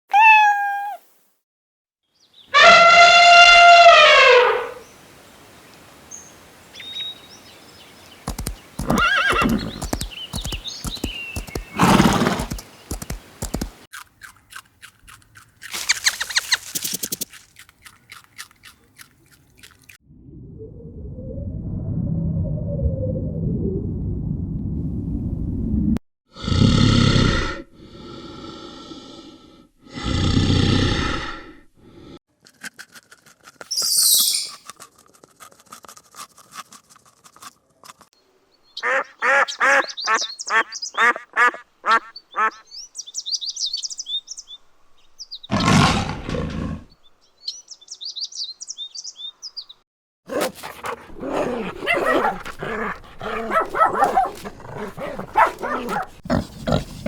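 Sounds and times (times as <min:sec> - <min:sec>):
animal calls: 0:08.2 - 0:13.8, 0:38.8 - 0:42.7, 0:50.3 - 0:57.0
high chirping: 0:08.2 - 0:13.8, 0:15.7 - 0:17.3, 0:33.7 - 0:34.7.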